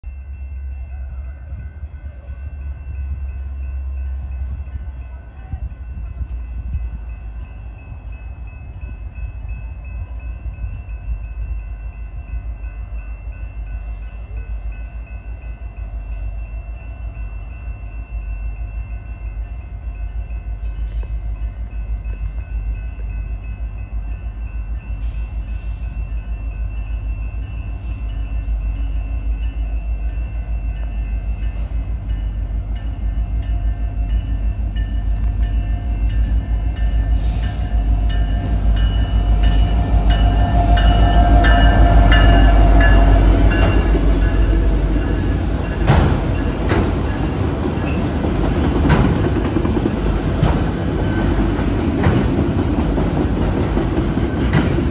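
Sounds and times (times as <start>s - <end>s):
diesel locomotives rumbling: 0.0s - 54.9s
faint steady high tones: 0.1s - 48.6s.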